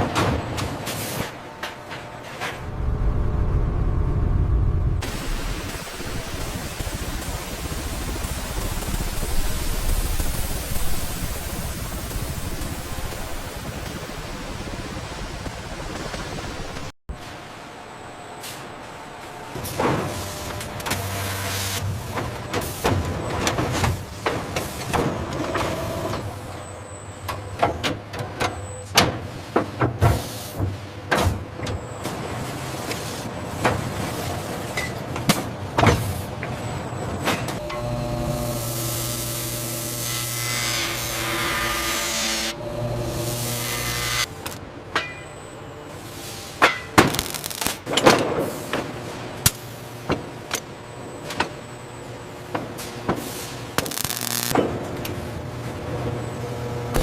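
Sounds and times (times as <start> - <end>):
steady machine hum: 1.4 - 16.9, 37.6 - 46.5, 48.9 - 57.0
low steady hum: 1.6 - 11.0.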